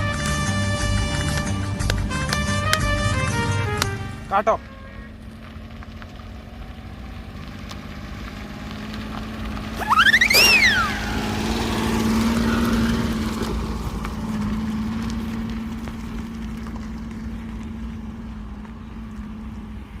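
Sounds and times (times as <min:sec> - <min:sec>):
engine humming: 0:00.0 - 0:20.0
loud whistle-like call: 0:09.8 - 0:11.6.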